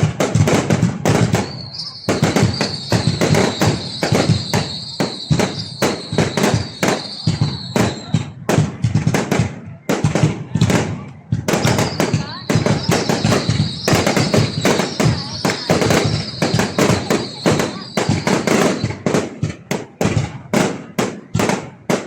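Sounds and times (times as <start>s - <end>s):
fireworks bangs: 0.0s - 22.0s
steady high whistle: 1.4s - 8.2s, 11.6s - 19.0s.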